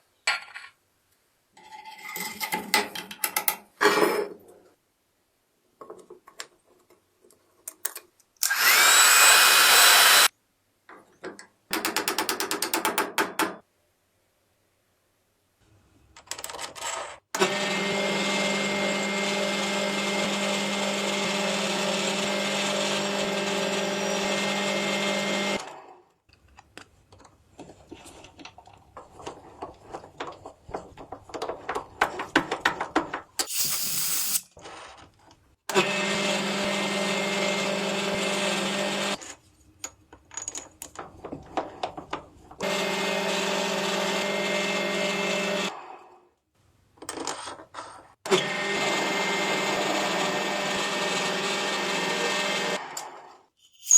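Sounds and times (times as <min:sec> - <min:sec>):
small power tool motor running: 0:08.4 - 0:10.3, 0:17.4 - 0:25.6, 0:48.4 - 0:52.8.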